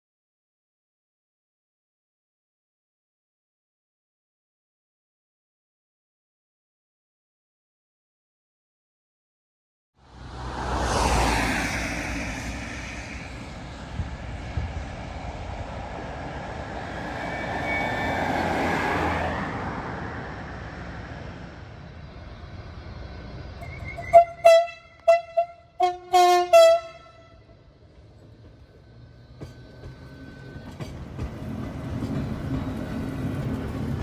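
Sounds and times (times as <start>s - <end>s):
train rumble: 10.2s - 34.0s
railway horn short toots: 23.6s - 27.5s.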